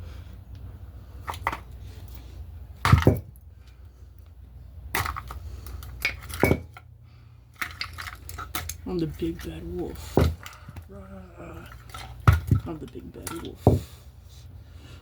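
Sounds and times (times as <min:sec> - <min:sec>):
thin wood knocking and cracking: 0:02.8 - 0:03.4, 0:04.9 - 0:06.8, 0:11.7 - 0:13.9.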